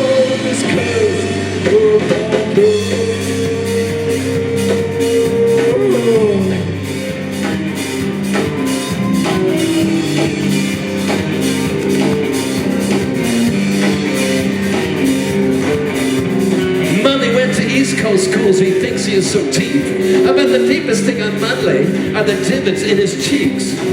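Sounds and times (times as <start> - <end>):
drum kit beat: 0.0 - 23.9
electric guitar: 0.0 - 23.9.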